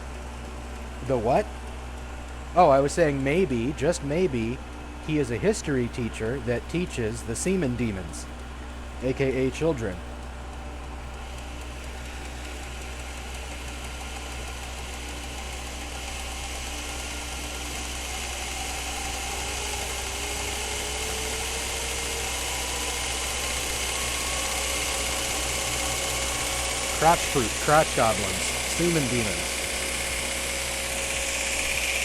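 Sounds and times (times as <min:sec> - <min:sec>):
belt grinder running: 0:02.4 - 0:32.0.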